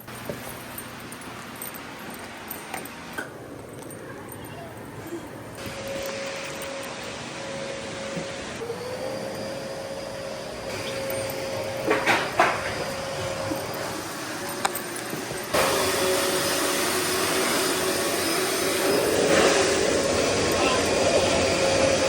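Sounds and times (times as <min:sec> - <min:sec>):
vacuum cleaner motor hum: 0:05.5 - 0:22.0.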